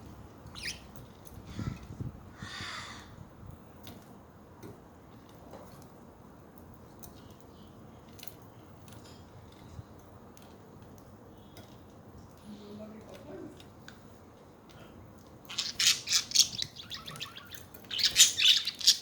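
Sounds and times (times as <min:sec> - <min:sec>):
budgerigars chirping: 0:00.5 - 0:00.9, 0:15.5 - 0:19.0
faint clicks and taps: 0:03.8 - 0:15.4.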